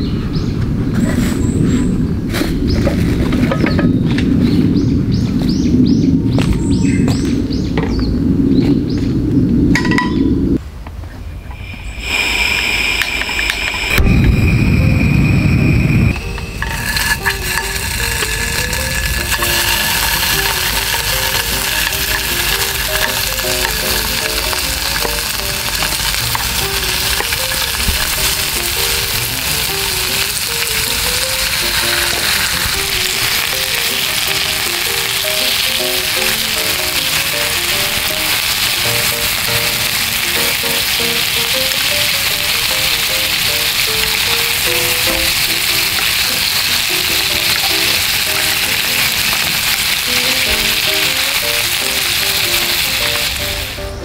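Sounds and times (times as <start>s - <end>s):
food sizzling in a frying pan: 11.8s - 54.0s.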